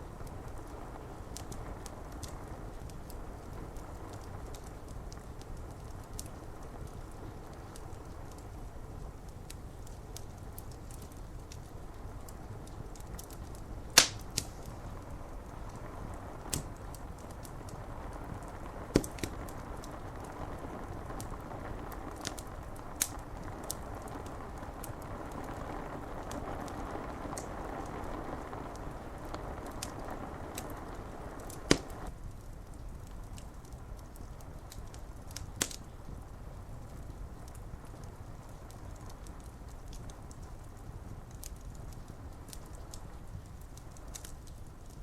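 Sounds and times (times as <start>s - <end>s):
rain on window glass: 0.0s - 45.0s
wood fire crackling: 0.0s - 45.0s.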